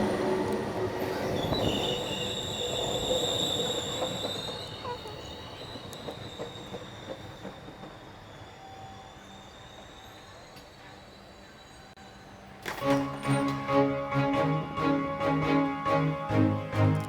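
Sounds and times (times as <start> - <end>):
train wheels squealing: 0.0 - 13.6.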